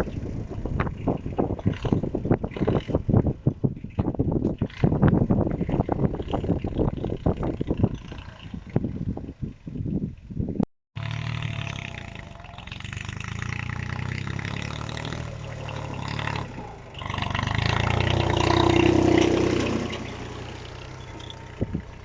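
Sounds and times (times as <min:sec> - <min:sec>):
tractor diesel engine running: 0:00.0 - 0:03.6, 0:11.0 - 0:22.0.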